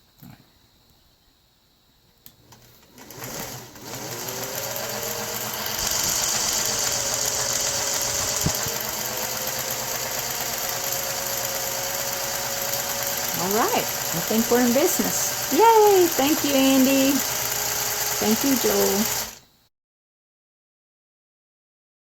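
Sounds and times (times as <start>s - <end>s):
sewing machine motor running: 2.5s - 19.4s.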